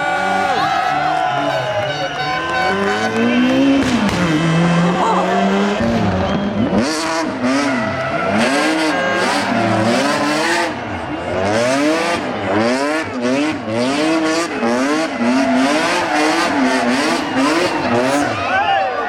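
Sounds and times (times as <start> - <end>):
rally car engine revving: 0.0 - 18.8.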